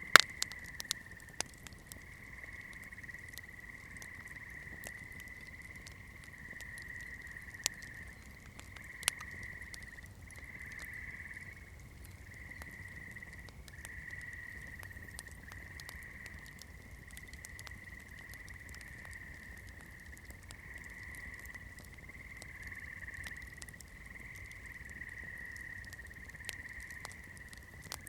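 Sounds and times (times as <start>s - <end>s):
wood popping: 0.0s - 2.0s
campfire crackling: 0.0s - 28.0s.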